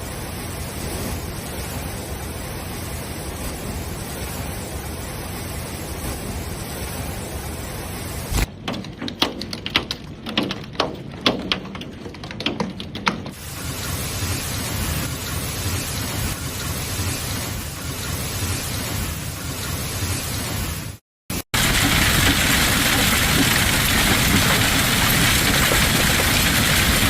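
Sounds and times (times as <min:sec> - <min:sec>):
heavy rain hiss: 0:00.0 - 0:08.5, 0:13.3 - 0:27.0
hailstones striking hard surface: 0:08.5 - 0:13.4, 0:21.6 - 0:27.0.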